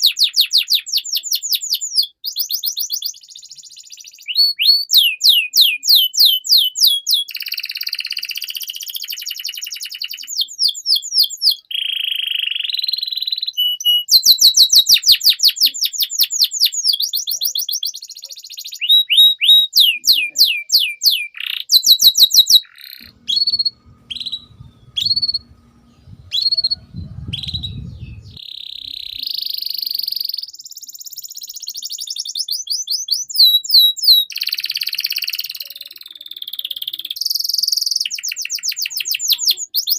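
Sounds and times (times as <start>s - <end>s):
canary singing: 0.0s - 39.9s
faint low rumble: 23.0s - 29.2s.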